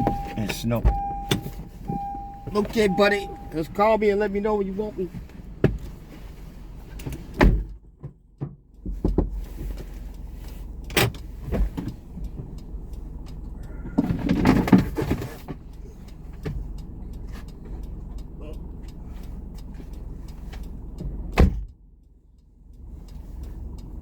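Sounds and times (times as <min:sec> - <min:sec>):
car door clicks and knocks: 0:00.0 - 0:03.5, 0:07.0 - 0:09.4, 0:21.3 - 0:21.8
engine humming: 0:00.0 - 0:24.0.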